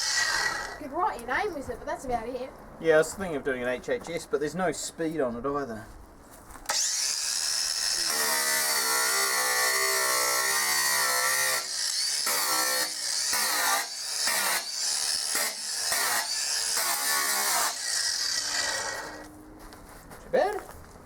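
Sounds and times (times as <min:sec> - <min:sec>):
power grinder engraving steel: 0:00.0 - 0:00.8, 0:06.7 - 0:19.3.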